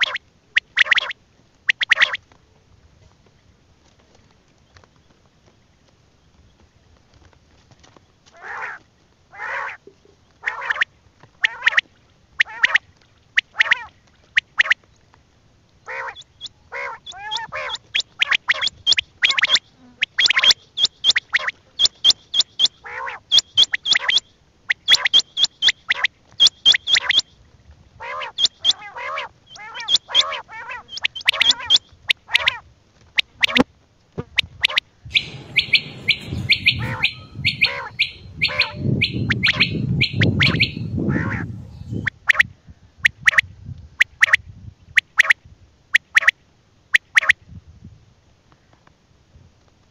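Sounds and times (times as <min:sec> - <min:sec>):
quail calling: 0:00.0 - 0:02.2, 0:08.4 - 0:12.8, 0:13.4 - 0:14.8, 0:15.8 - 0:27.3, 0:28.0 - 0:32.6, 0:33.2 - 0:33.6, 0:34.3 - 0:43.4.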